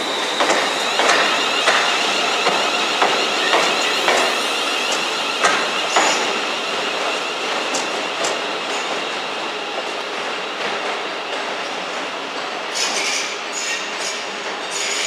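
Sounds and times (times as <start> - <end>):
train wheels clacking over rail joints: 0.0 - 9.1
train rumble with high whine: 0.0 - 15.0.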